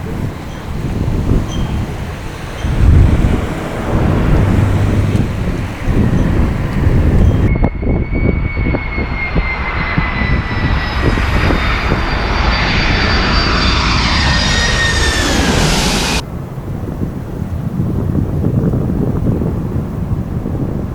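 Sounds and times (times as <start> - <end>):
jet engines whining: 0.0 - 16.3
wind buffeting microphone: 0.0 - 20.9.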